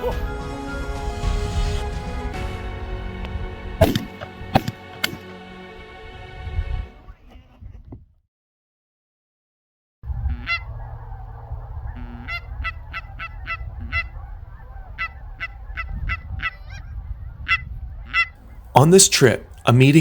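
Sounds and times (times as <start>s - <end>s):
low rumble: 0.4s - 5.0s
geese honking: 10.1s - 20.0s.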